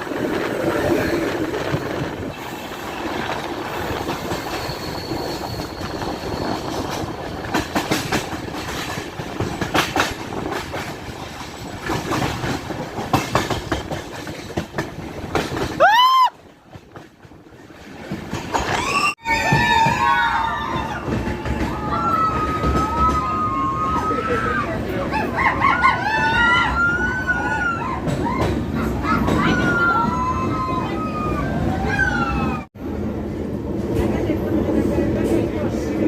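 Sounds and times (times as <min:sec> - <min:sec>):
train wheels clacking on rails: 0:00.0 - 0:18.8, 0:19.4 - 0:24.5.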